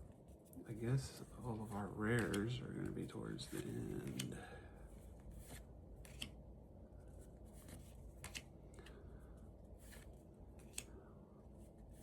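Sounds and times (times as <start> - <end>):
cards sliding: 2.2 - 2.6, 5.2 - 6.4, 7.5 - 9.0, 9.8 - 11.0
cards snapping into place: 8.2 - 8.5, 10.6 - 11.0.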